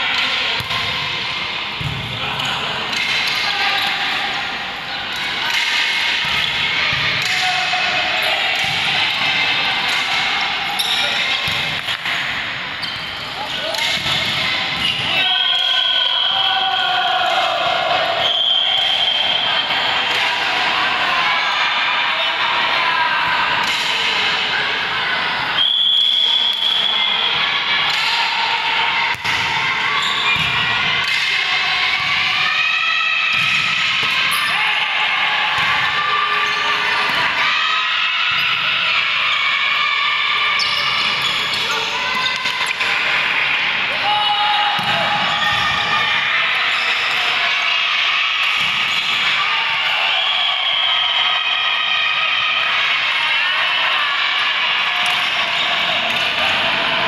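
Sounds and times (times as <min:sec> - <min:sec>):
players' voices: 0:00.0 - 0:57.0
ball bouncing on indoor court: 0:00.1 - 0:04.0, 0:05.1 - 0:07.7, 0:08.5 - 0:15.6, 0:29.1 - 0:31.3, 0:33.3 - 0:34.4, 0:35.5 - 0:37.2, 0:44.7 - 0:45.9
shoe squeaks: 0:12.8 - 0:13.7, 0:30.0 - 0:30.4, 0:40.6 - 0:42.3.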